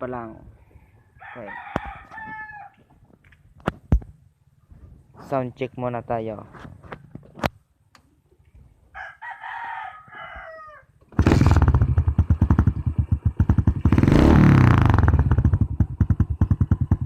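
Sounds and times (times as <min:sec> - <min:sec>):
rooster crowing: 0:01.0 - 0:02.8, 0:08.9 - 0:11.0
motorcycle engine revving and idling: 0:11.1 - 0:17.0.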